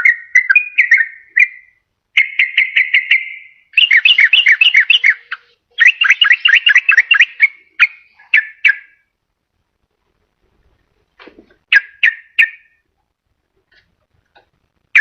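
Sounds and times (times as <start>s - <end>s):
bird singing bubbly chattering notes: 0.0s - 9.0s.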